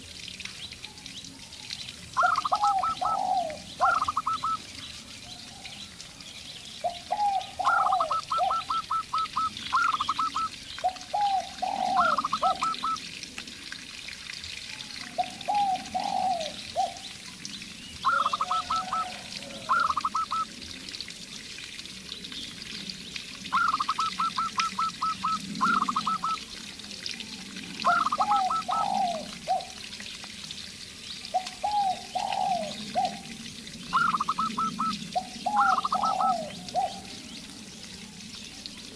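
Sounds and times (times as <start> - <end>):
doves cooing: 2.2 - 4.6, 6.8 - 13.0, 15.2 - 17.0, 18.0 - 20.4, 23.5 - 26.5, 27.8 - 29.8, 31.3 - 33.3, 33.9 - 37.2.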